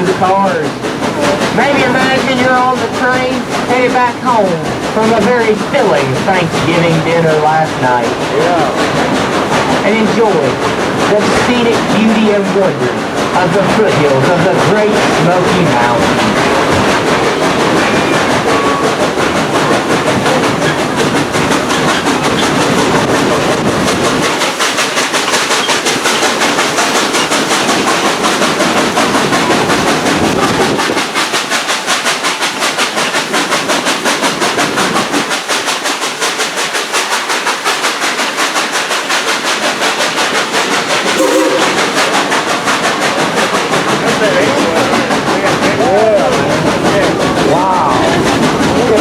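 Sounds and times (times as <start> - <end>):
train cars rolling and rattling: 0.0 - 49.0.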